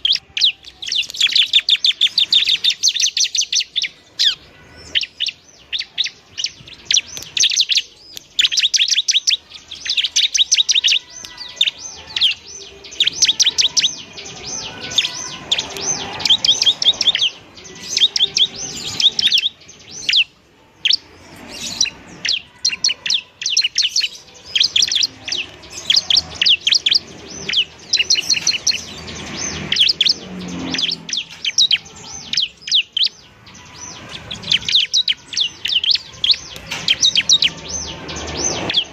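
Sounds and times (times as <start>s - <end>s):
bird singing sharp chirps: 0.0s - 38.9s.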